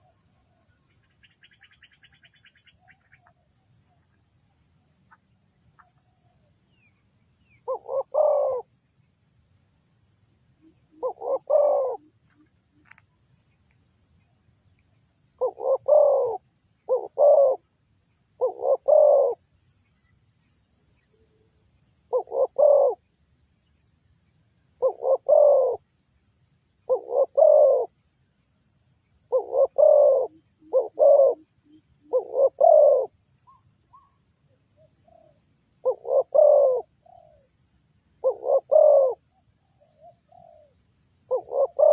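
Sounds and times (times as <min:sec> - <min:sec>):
faint high insect trill: 0:00.0 - 0:41.9
dove cooing: 0:07.6 - 0:08.7, 0:10.6 - 0:13.0, 0:15.4 - 0:17.6, 0:18.4 - 0:19.4, 0:22.1 - 0:23.0, 0:24.8 - 0:25.8, 0:26.9 - 0:27.9, 0:29.3 - 0:34.1, 0:34.8 - 0:37.5, 0:38.2 - 0:41.9.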